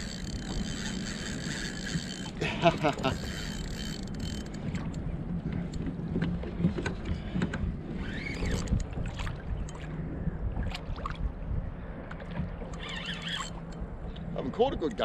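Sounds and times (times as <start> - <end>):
fishing gear clicks and knocks: 0.0 - 7.7, 8.3 - 10.0
water lapping against kayak hull: 0.0 - 15.0.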